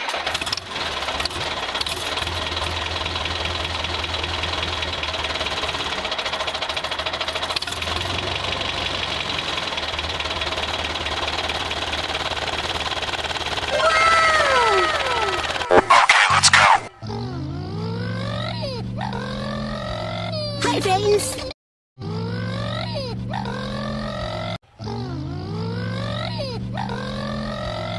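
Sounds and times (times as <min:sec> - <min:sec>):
diesel engine idling with knock: 0:00.0 - 0:13.8.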